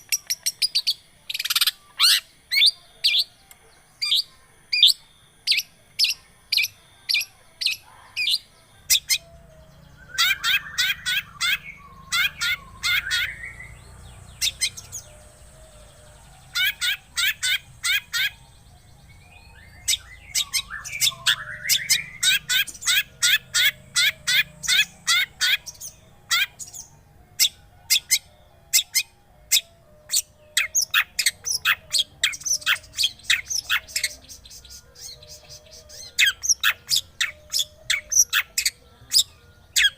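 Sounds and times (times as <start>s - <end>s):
scratchy bird warbling chatter: 10.1s - 13.8s, 16.5s - 18.4s, 19.8s - 26.8s.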